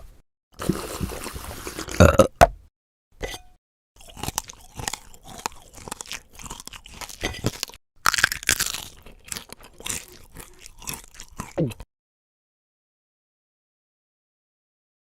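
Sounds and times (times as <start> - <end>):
crunchy chewing: 4.0 - 11.8.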